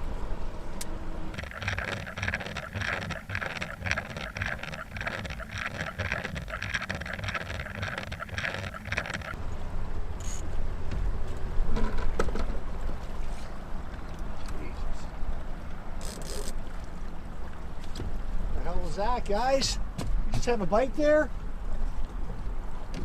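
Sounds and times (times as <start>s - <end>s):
boat motor humming: 1.4s - 9.4s
fishing reel clicking rapidly: 1.4s - 9.4s.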